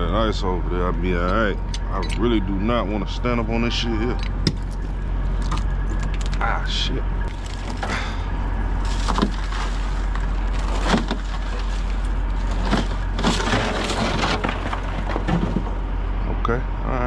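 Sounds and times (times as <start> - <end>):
low rumble: 0.0 - 17.0
ice cracking and knocking: 7.3 - 16.0.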